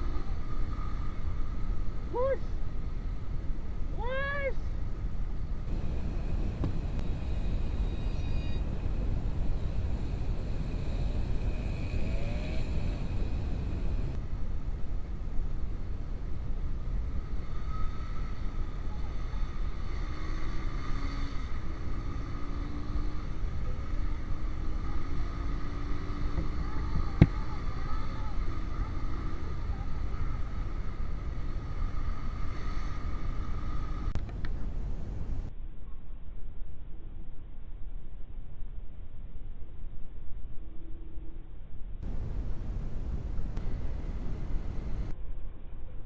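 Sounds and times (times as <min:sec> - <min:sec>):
wind rumble on microphone: 0:04.7 - 0:19.9, 0:21.4 - 0:46.0
motorcycle engine running: 0:05.7 - 0:14.2.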